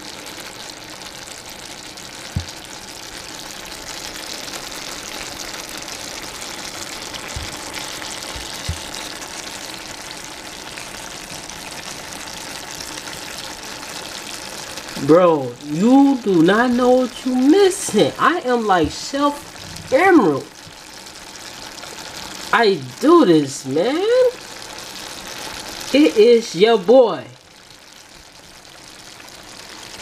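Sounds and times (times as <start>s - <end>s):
stir-fry sizzling in a pan: 0.0s - 30.0s
soft low thumps: 2.3s - 2.6s, 8.3s - 9.0s, 18.8s - 19.9s.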